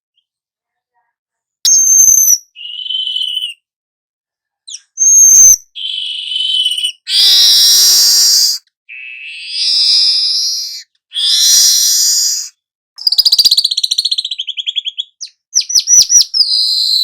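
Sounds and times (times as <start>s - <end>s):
songbird singing: 1.7s - 3.6s, 4.7s - 17.0s.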